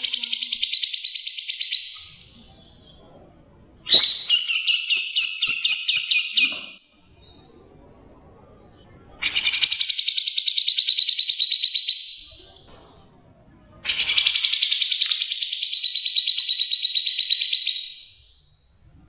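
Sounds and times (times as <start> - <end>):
songbird trilling: 3.9 - 6.8.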